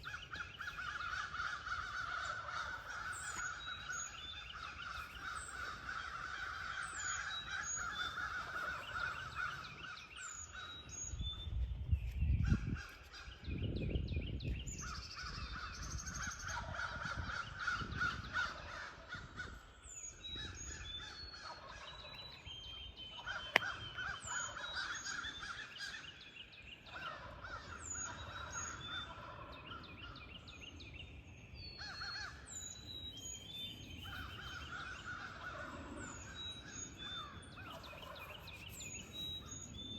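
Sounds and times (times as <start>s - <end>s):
birds chirping: 0.0s - 11.6s, 17.1s - 39.9s
wind gusts on microphone: 0.0s - 22.6s.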